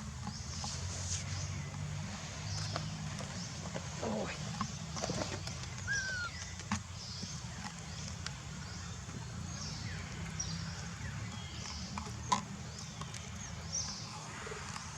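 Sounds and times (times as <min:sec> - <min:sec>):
animal chirps and squeaks: 0:05.8 - 0:06.6.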